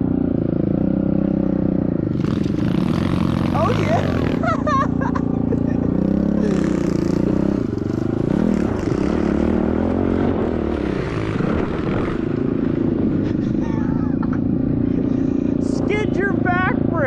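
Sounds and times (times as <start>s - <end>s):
small motorbike engine revving: 0.8s - 12.5s.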